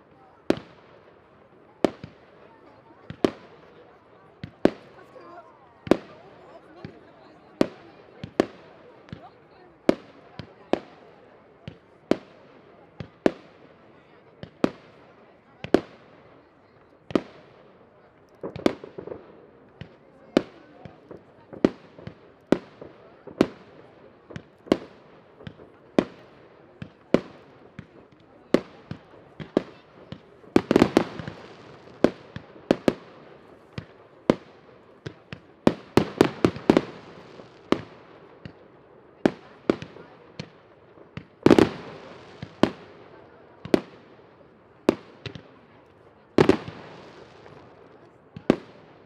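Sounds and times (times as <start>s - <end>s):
fireworks banging: 18.4s - 38.7s.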